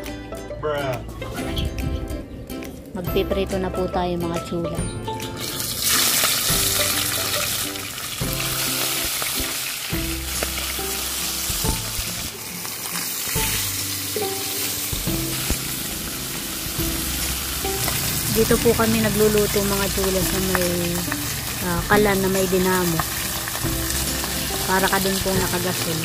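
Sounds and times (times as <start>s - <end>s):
fish sizzling in hot oil: 5.4s - 26.0s.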